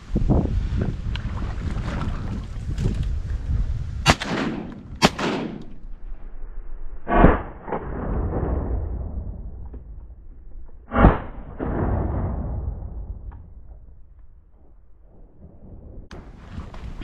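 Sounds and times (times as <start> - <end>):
shotgun shots with echo: 4.0 - 5.8
dull gun bang: 4.1 - 5.8.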